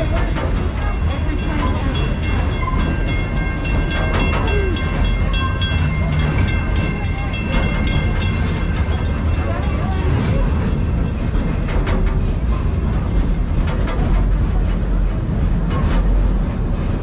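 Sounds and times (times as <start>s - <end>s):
ride train rumbling and rattling: 0.0s - 17.0s.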